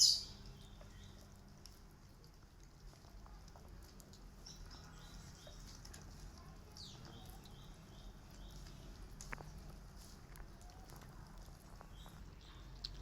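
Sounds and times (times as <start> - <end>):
faint bird chirping: 0.0 - 1.3, 4.4 - 9.8, 11.6 - 13.0.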